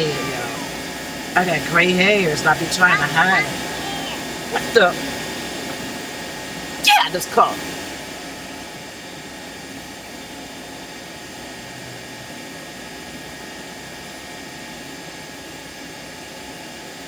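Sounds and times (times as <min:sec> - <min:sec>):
fan rushing noise: 0:00.0 - 0:10.4.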